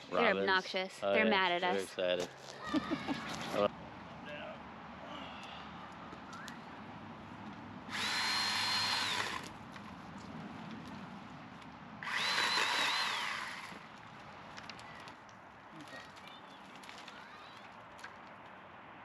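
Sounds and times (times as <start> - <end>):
chainsaw whine: 7.9 - 9.5, 12.0 - 13.8.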